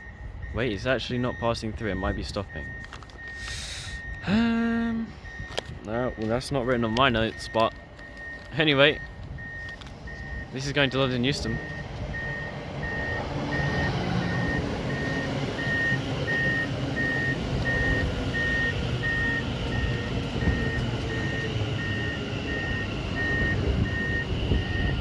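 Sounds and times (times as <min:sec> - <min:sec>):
high electronic warning beeps: 0:00.0 - 0:25.0
electric train rumbling: 0:09.2 - 0:25.0.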